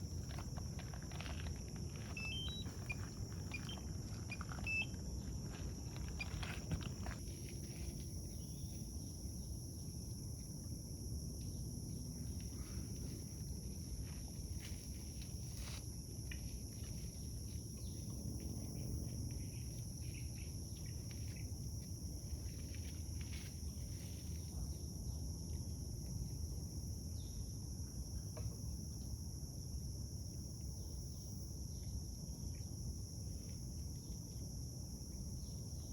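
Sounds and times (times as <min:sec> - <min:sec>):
high-pitched insect drone: 0:00.0 - 0:15.9
faint bird chirps: 0:02.1 - 0:04.9.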